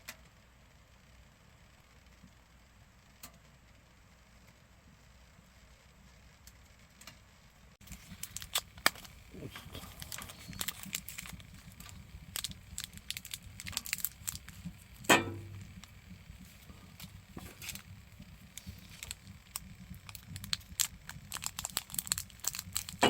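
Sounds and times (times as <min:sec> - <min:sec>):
wood fire crackling: 0:06.4 - 0:23.0
fire popping: 0:07.8 - 0:23.0.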